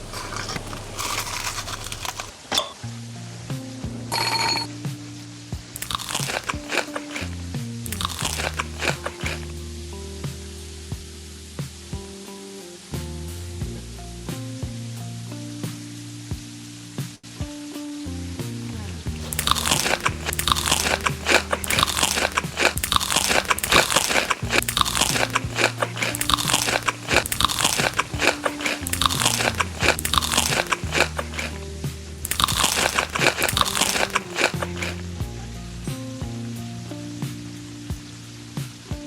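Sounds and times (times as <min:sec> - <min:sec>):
crunchy food chewing: 0:00.0 - 0:02.4, 0:05.8 - 0:09.5, 0:19.1 - 0:35.1
background music: 0:17.5 - 0:38.9.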